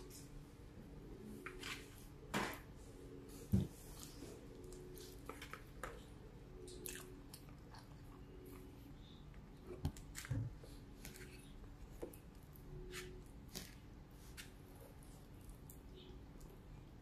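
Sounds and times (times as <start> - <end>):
chewing spaghetti: 4.0 - 8.8.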